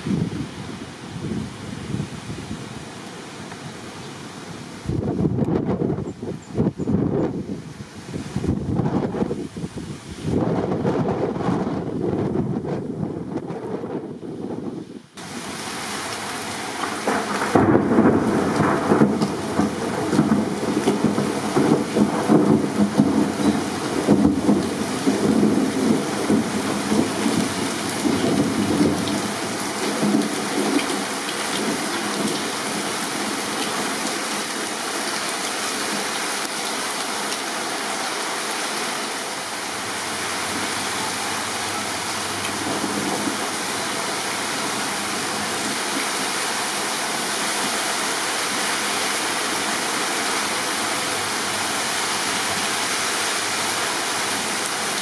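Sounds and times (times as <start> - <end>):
torrential rain: 0.0 - 55.0
thunder rumbling: 10.3 - 15.6, 16.2 - 33.4, 39.8 - 45.9.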